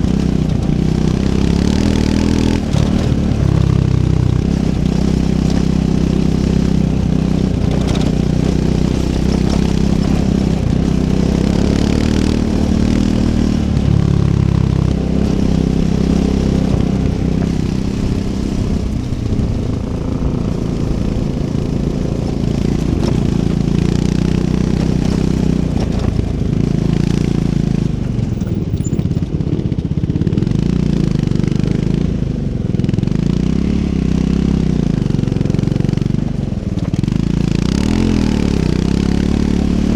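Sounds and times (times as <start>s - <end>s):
motorcycle engine under load: 0.0s - 39.9s.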